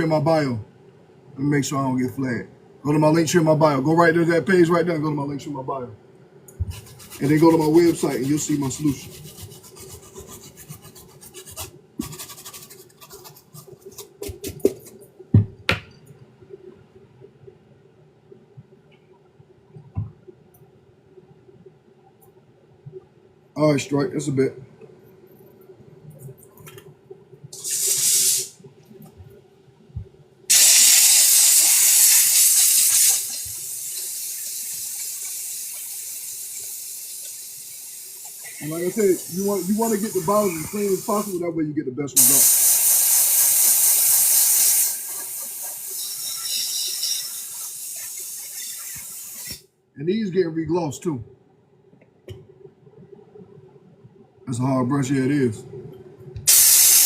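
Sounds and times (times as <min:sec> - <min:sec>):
brush scrubbing a sneaker: 0:06.6 - 0:15.0
water running from tap into sink: 0:30.5 - 0:41.3, 0:42.2 - 0:49.6.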